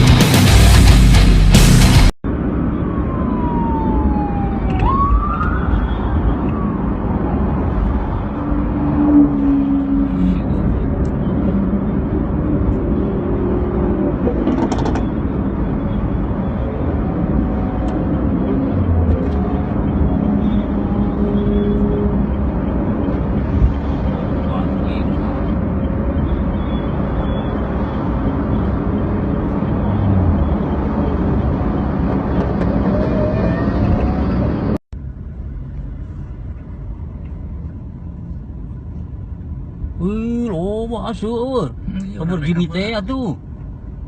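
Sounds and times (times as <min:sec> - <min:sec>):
loud music: 0:00.0 - 0:02.1
traffic and engine noise: 0:00.0 - 0:44.0
police siren sweeping: 0:02.3 - 0:10.3, 0:25.9 - 0:34.8.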